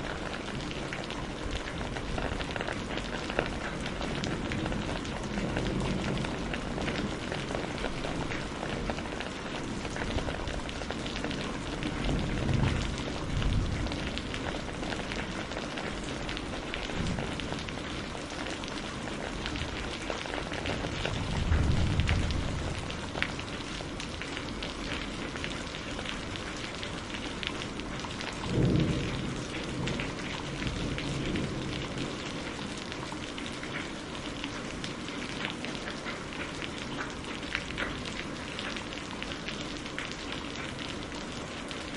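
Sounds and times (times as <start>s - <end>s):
steady rain: 0.0s - 41.9s
low rumbles of thunder: 0.1s - 33.5s.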